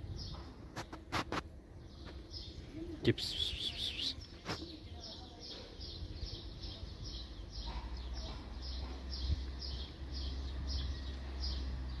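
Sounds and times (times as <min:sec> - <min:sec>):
bird chirping: 0:00.0 - 0:01.0, 0:01.7 - 0:12.0.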